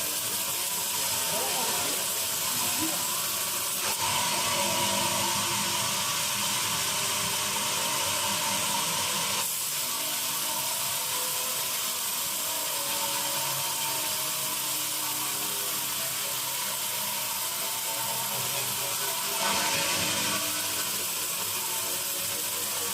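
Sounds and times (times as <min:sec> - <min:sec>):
band saw cutting wood: 0:00.0 - 0:11.7, 0:12.3 - 0:22.9.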